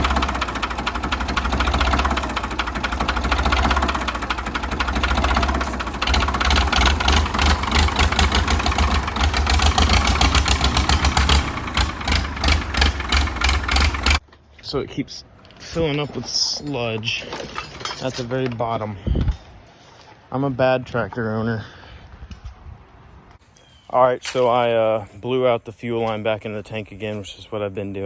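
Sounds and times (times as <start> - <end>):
diesel engine cranking: 0.0 - 14.2.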